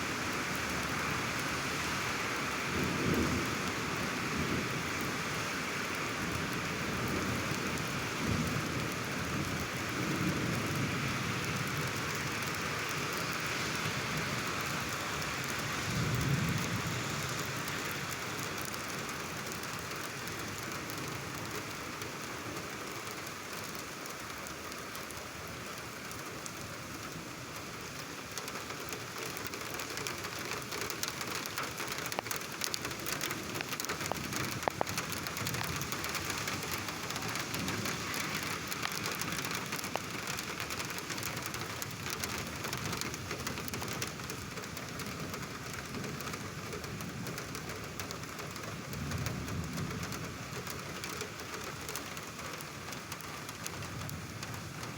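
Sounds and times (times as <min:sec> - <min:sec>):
heavy rain splashing: 0:00.0 - 0:54.9
low rumble of thunder: 0:02.6 - 0:05.4, 0:06.6 - 0:12.6, 0:15.8 - 0:18.2
raindrops tapping sharply: 0:26.0 - 0:54.9.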